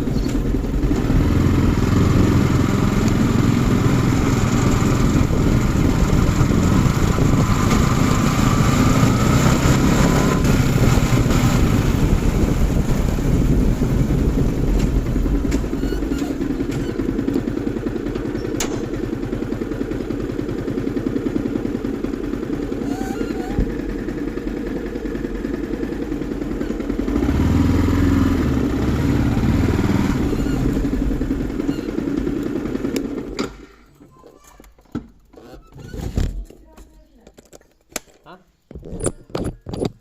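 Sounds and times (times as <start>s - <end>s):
motorcycle engine running: 0.0s - 33.7s.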